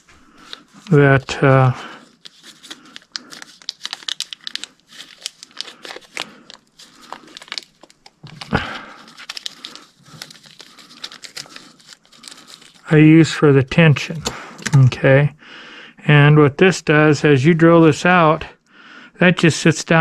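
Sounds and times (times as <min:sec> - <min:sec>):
packet crinkling with small clicks: 0:00.1 - 0:13.0, 0:14.1 - 0:14.9.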